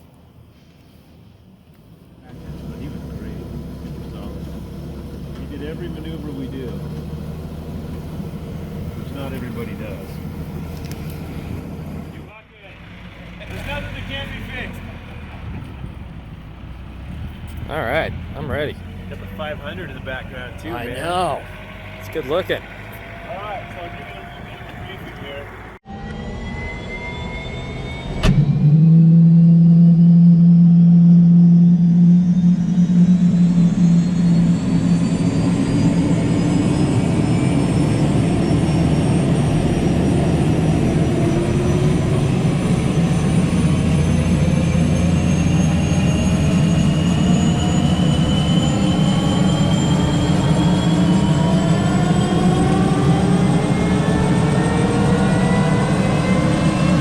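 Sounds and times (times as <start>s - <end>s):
helicopter engines and rotor: 2.2s - 12.3s, 17.7s - 28.7s, 31.2s - 57.0s
rising turbine whine: 17.0s - 57.0s.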